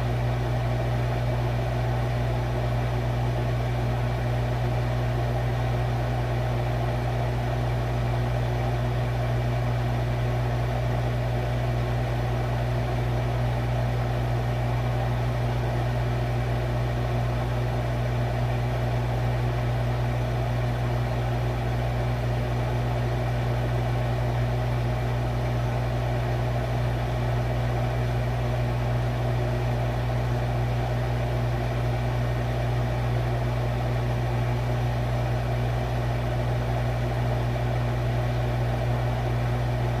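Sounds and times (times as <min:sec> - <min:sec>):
refrigerator humming: 0:00.0 - 0:40.0.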